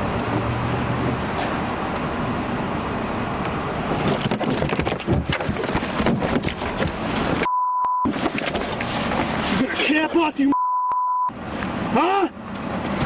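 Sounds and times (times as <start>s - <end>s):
vehicle noise: 0.0s - 13.0s
short steady beep: 7.5s - 8.1s, 10.5s - 11.3s.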